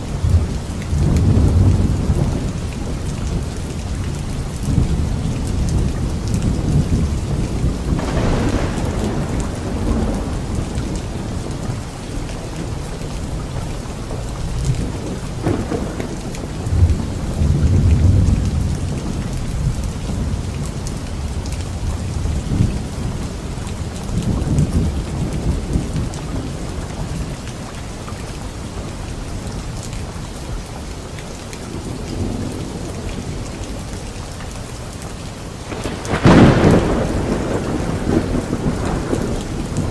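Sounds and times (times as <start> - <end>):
steady rain: 0.0 - 39.9
rolling thunder: 0.2 - 27.4, 35.6 - 39.9.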